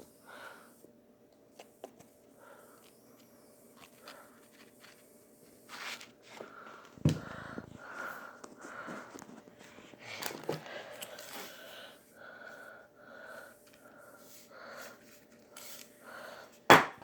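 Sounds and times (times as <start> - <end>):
utensil knocking on bowl: 16.7 - 17.0.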